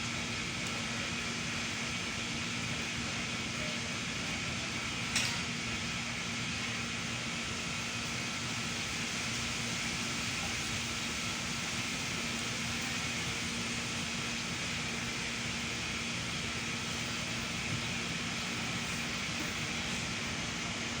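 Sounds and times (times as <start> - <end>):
steady machine hiss: 0.0 - 21.0.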